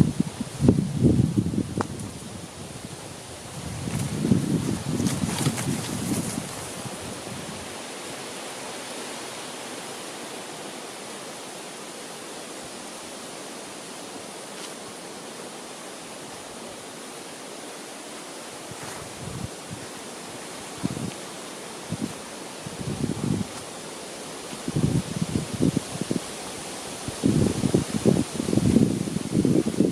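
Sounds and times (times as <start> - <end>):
wind gust buffeting microphone: 0.0 - 7.7, 18.7 - 19.9, 20.7 - 21.1, 21.8 - 23.6, 24.6 - 29.9
wind rustling leaves: 0.0 - 29.9.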